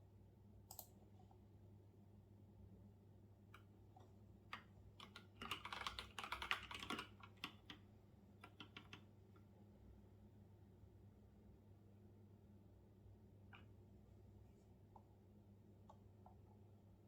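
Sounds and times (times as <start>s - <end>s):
typing on a keyboard: 0.7s - 0.9s, 4.5s - 7.8s, 8.4s - 9.1s.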